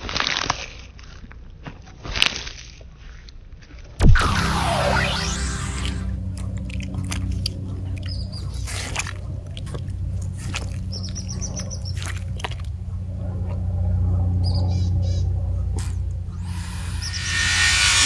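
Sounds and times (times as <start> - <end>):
tortoise chewing watermelon: 0.0 - 4.0, 6.4 - 16.8
steady low hum: 4.0 - 18.0.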